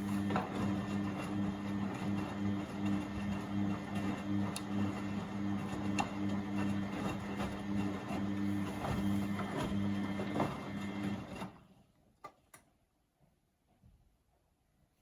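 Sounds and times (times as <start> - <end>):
washing machine drum hum: 0.0 - 11.4.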